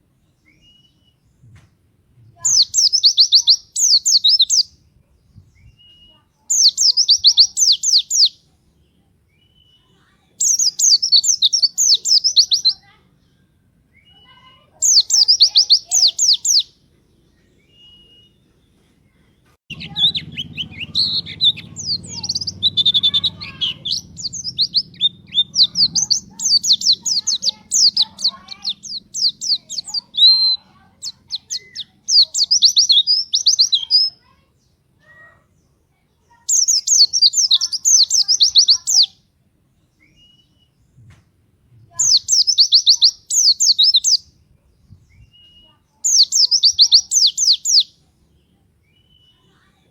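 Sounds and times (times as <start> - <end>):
bird chirping fast high runs: 19.7 - 34.1.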